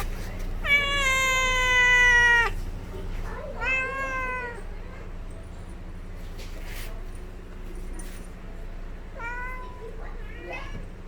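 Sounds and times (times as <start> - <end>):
cat meowing: 0.0 - 2.6, 3.6 - 4.6.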